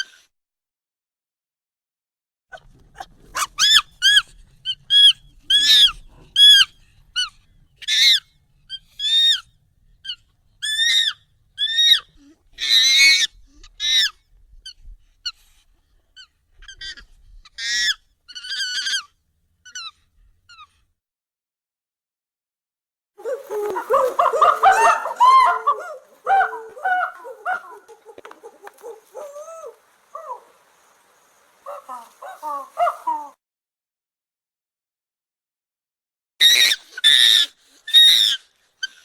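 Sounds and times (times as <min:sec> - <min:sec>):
rough monkey call: 0:02.5 - 0:14.2, 0:16.2 - 0:20.7, 0:23.2 - 0:33.4, 0:36.4 - 0:39.0
high-pitched monkey calls: 0:03.3 - 0:14.2, 0:16.2 - 0:20.7, 0:23.2 - 0:30.9, 0:31.6 - 0:33.4, 0:36.4 - 0:39.0.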